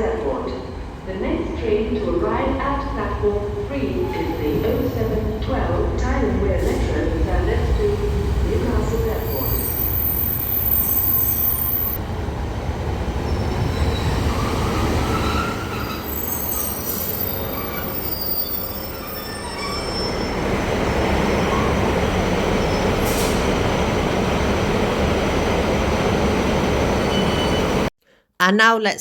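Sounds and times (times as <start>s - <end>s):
train rumbling: 0.0s - 27.9s
train wheels squealing: 9.3s - 12.0s, 13.3s - 20.5s, 21.2s - 23.4s, 26.9s - 27.9s.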